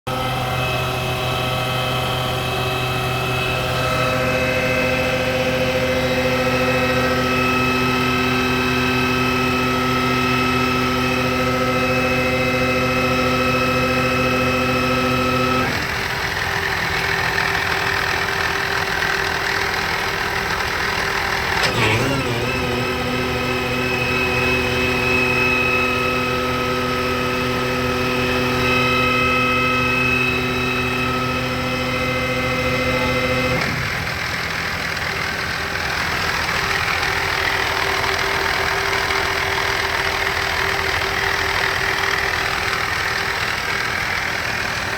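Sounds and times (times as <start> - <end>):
tractor engine running: 0.0 - 44.9
clunk: 21.6 - 22.4.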